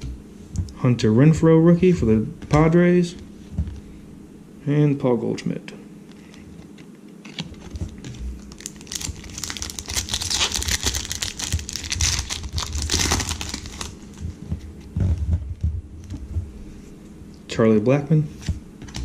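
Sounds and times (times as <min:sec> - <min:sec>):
plastic wrapper crackling: 0:07.3 - 0:14.3.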